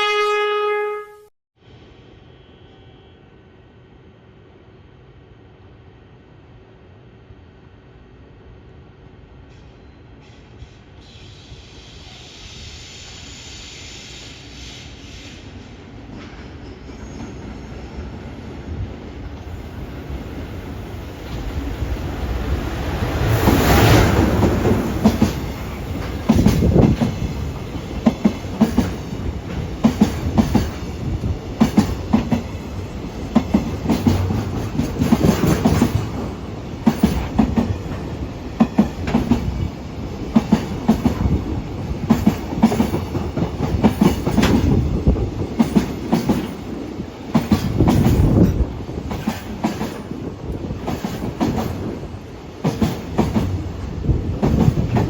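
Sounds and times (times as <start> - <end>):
low train rumble: 1.6 - 55.0.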